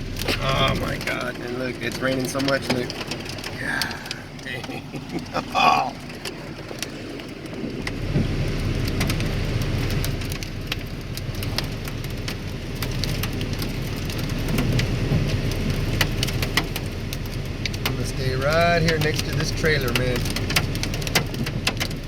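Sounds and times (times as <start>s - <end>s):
hailstones hitting vehicle: 0.0s - 22.0s
heavy rain on vehicle: 0.0s - 22.0s
low roar: 3.6s - 6.3s.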